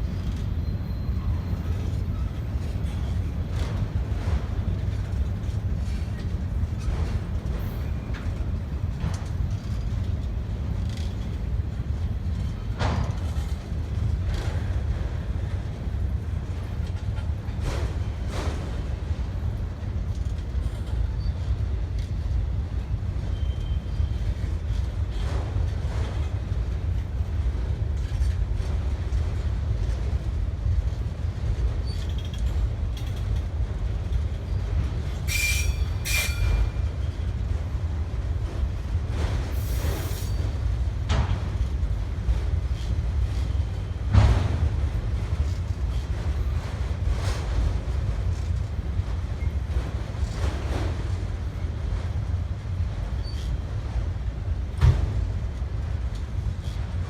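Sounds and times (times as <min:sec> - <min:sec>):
train wheels squealing: 0:00.0 - 0:03.3, 0:20.6 - 0:21.6, 0:23.2 - 0:25.3, 0:31.8 - 0:33.2, 0:34.4 - 0:37.3, 0:39.5 - 0:40.6, 0:53.1 - 0:53.7
freight train cars rolling: 0:00.0 - 0:57.0.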